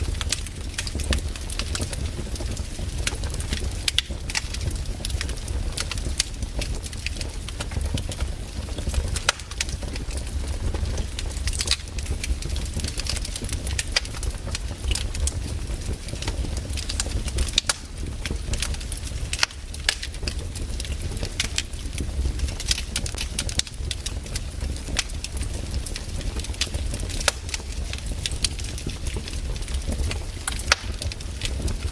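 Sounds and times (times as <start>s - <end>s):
low rumble of flames: 0.0s - 31.9s
wood crackling and popping: 0.0s - 31.9s.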